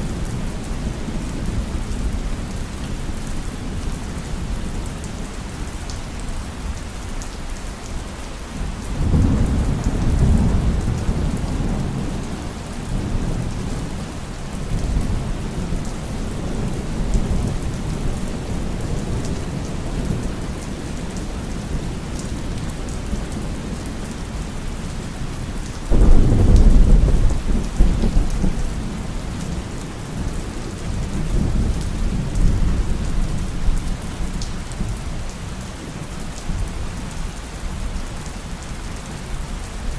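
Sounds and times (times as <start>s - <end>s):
heavy rain: 0.0s - 39.9s
thunder rumbling: 25.9s - 34.9s.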